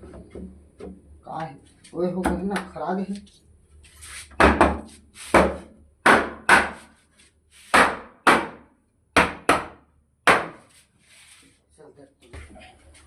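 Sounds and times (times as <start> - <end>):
hammer striking wood: 4.4 - 6.9, 7.7 - 10.7.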